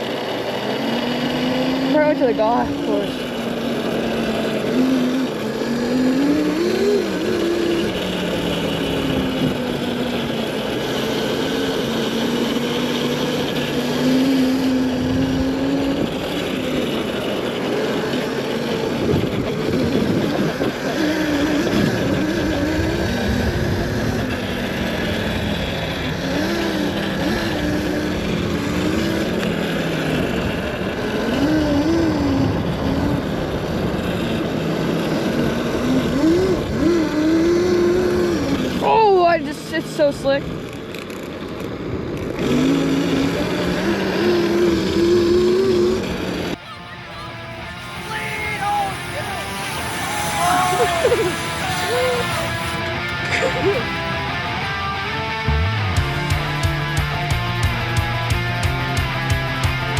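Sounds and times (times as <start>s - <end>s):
dirt bike motor revving: 0.0s - 54.9s
wind: 0.0s - 59.9s
tyre noise: 46.5s - 54.8s.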